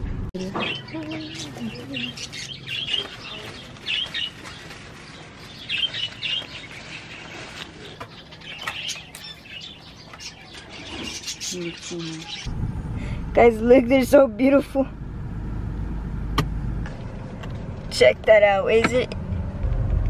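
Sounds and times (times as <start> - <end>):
small birds chirping: 0.4 - 14.1.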